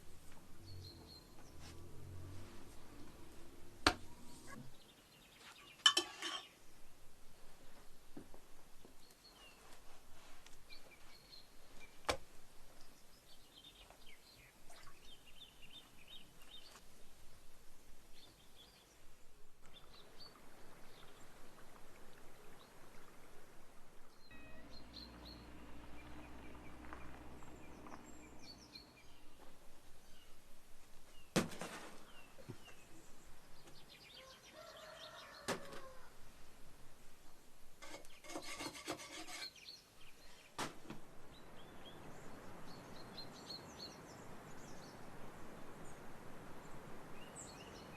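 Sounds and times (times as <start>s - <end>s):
birds chirping: 24.1s - 30.4s.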